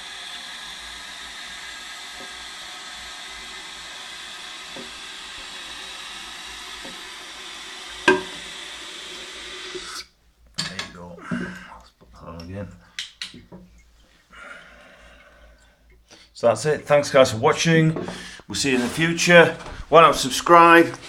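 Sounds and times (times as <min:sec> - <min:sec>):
toilet cistern refilling hiss: 0:00.0 - 0:10.2, 0:10.8 - 0:11.8, 0:14.6 - 0:21.0
fill valve click: 0:00.5 - 0:10.0.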